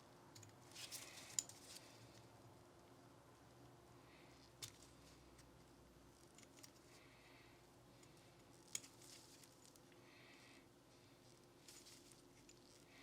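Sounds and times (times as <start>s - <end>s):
soft rubbing: 10.8s - 13.0s.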